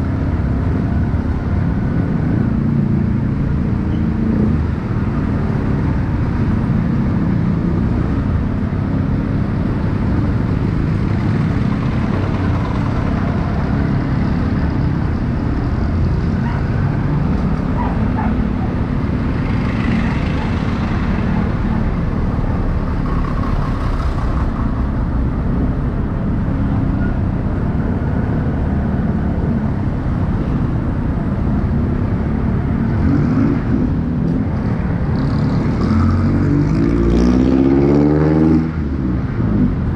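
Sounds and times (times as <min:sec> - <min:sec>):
street traffic noise: 0:00.0 - 0:39.9
motorcycle engine rumble: 0:04.8 - 0:32.9.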